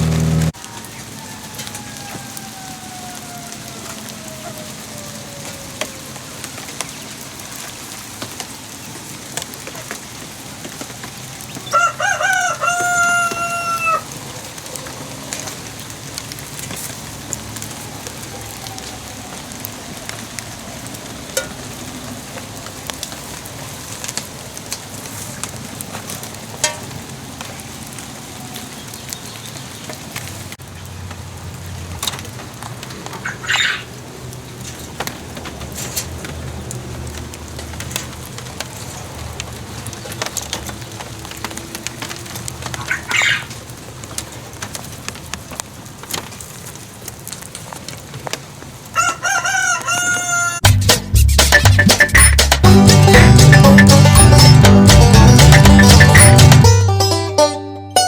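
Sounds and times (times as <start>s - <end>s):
rooster crowing: 0.0s - 6.4s, 11.6s - 14.2s, 49.0s - 50.6s
steady rain with drips: 0.0s - 50.6s.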